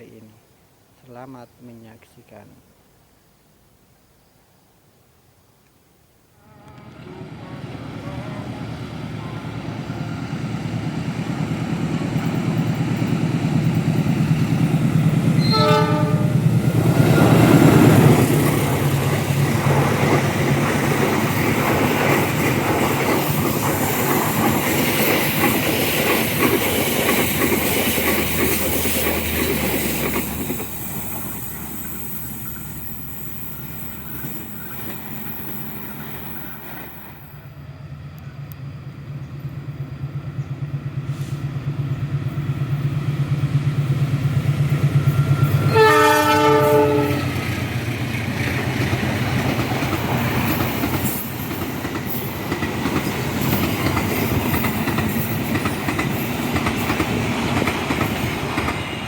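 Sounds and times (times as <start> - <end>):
train horn blast: 6.4 - 10.4, 15.4 - 18.1, 45.4 - 47.4
train rattling over rail joints: 6.5 - 59.0.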